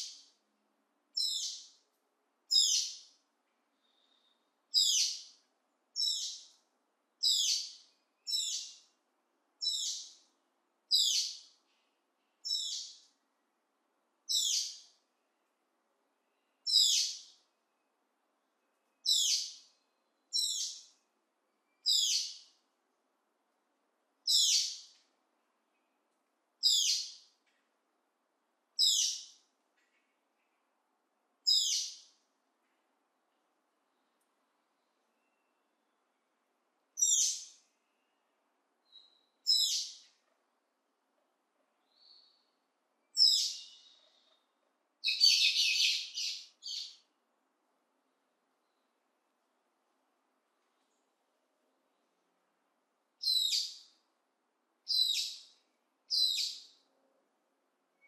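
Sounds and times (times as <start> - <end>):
bird high-pitched call: 1.2 - 1.7, 2.5 - 3.0, 3.9 - 5.3, 7.2 - 8.8, 9.6 - 10.2, 10.9 - 11.5, 12.4 - 13.0, 14.3 - 14.8, 16.7 - 17.3, 19.0 - 19.6, 20.3 - 20.9, 21.8 - 22.4, 24.3 - 24.9, 26.6 - 27.2, 28.8 - 29.3, 31.5 - 32.0, 37.0 - 37.6, 38.9 - 40.1, 43.2 - 44.3, 45.0 - 47.0, 53.2 - 53.9, 54.9 - 55.5, 56.1 - 56.7.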